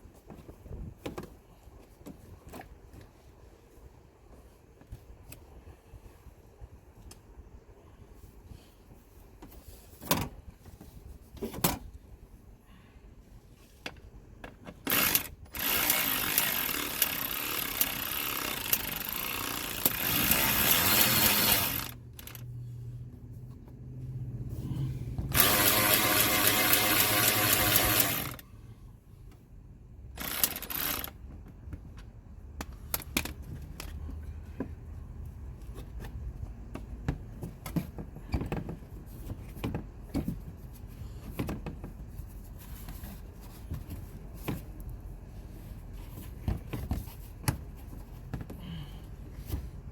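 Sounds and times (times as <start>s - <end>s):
handheld power tool running: 14.9s - 22.4s, 25.3s - 28.4s, 30.2s - 31.2s.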